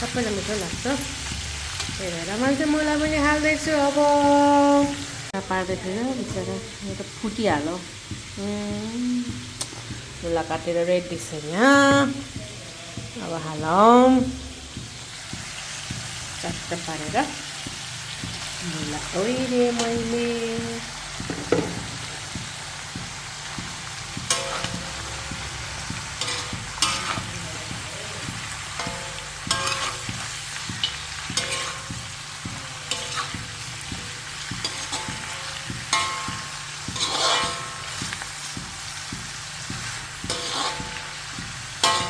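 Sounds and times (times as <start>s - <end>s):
food sizzling in a pan: 0.0s - 42.0s
spoon scraping a pan: 23.4s - 42.0s.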